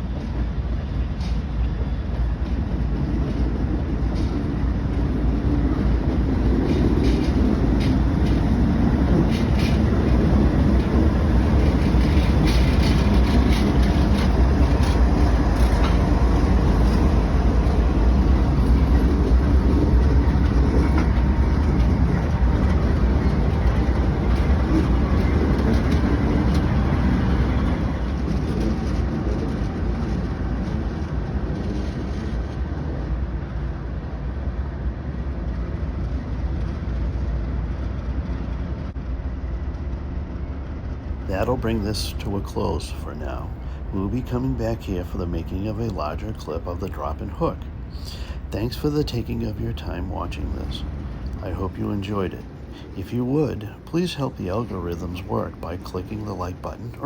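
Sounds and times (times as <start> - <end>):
diesel locomotive engine rumble: 0.0 - 57.0.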